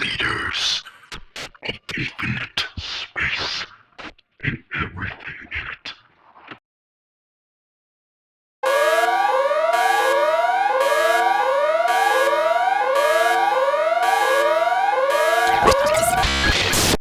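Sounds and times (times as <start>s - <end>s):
electronic whooping alarm siren: 8.6s - 16.5s
steady electronic drone: 15.4s - 17.0s.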